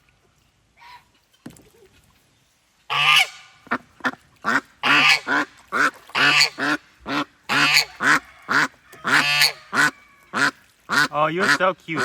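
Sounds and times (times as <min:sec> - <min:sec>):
ducks quacking: 0:02.9 - 0:12.0
geese honking: 0:02.9 - 0:12.0.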